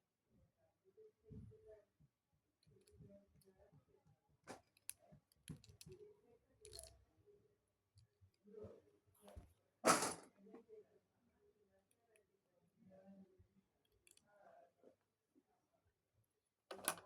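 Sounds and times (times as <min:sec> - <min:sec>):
plastic bricks clicking together: 0:06.6 - 0:07.0.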